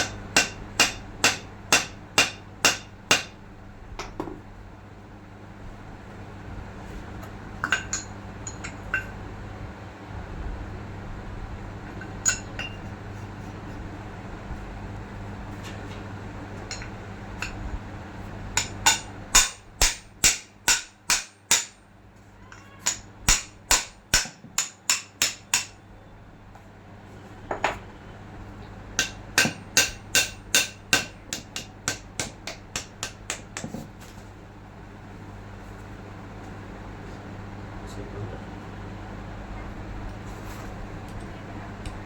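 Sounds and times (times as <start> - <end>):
hammer striking metal: 0.0 - 3.4, 18.6 - 21.8, 22.8 - 25.8, 29.0 - 33.7.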